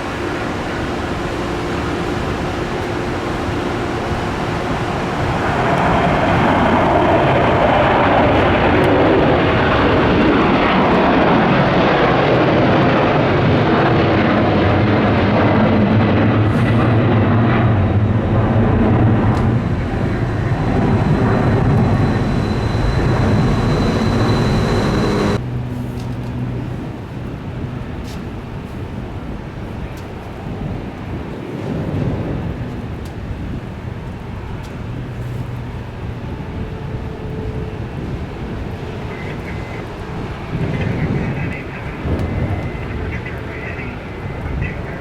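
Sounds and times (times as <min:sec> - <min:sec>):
low steady drone: 0:00.0 - 0:29.6
jet engines roaring: 0:00.0 - 0:45.0.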